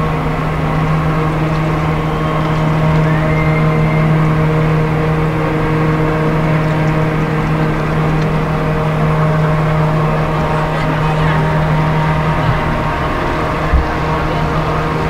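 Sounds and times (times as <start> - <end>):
ship engines humming: 0.0 - 15.0.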